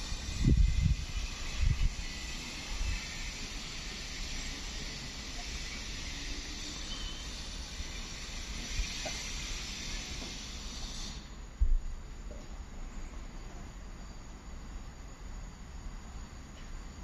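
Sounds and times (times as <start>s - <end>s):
distant train approaching: 0.0s - 11.6s.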